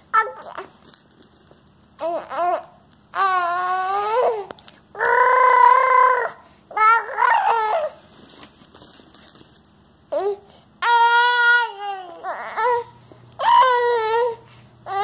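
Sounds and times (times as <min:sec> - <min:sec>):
baby crying and babbling: 0:00.1 - 0:00.7, 0:02.0 - 0:08.0, 0:10.1 - 0:15.0.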